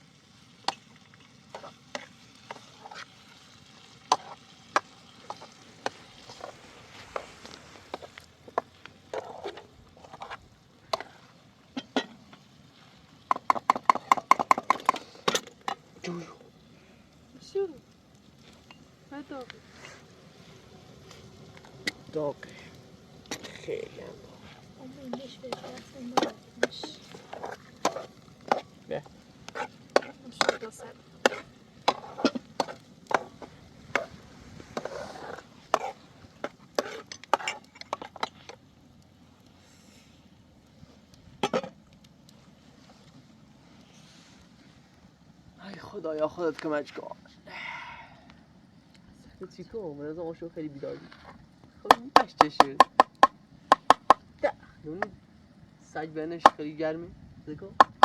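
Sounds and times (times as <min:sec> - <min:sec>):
chopping wood: 0:51.9 - 0:54.2.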